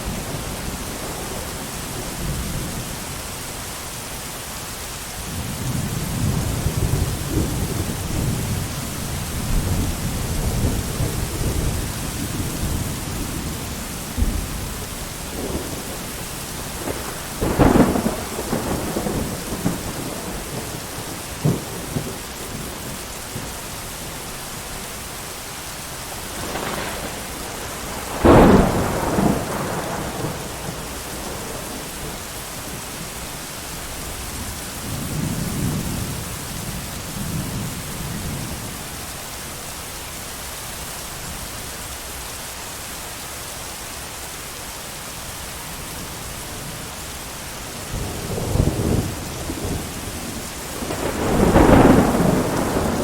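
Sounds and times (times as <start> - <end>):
heavy rain: 0.0 - 53.0
rolling thunder rumbles: 5.3 - 24.5, 26.1 - 38.7, 47.7 - 53.0
thunderclaps: 9.4 - 23.6, 26.2 - 32.8, 47.9 - 53.0.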